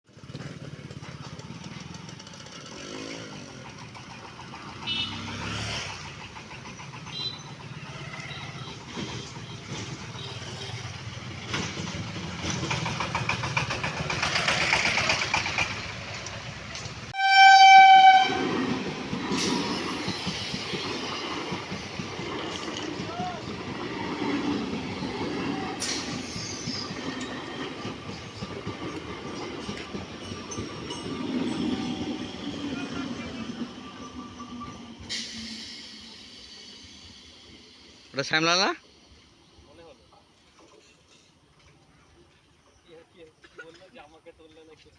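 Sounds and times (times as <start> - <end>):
engines idling: 0.1 - 17.1
train wheels rumbling and clacking: 0.1 - 42.8.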